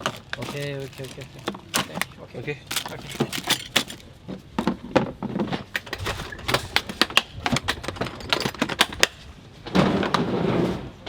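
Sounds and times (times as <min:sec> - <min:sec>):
rustling: 0:00.0 - 0:04.1
small hard objects clattering: 0:00.0 - 0:04.8.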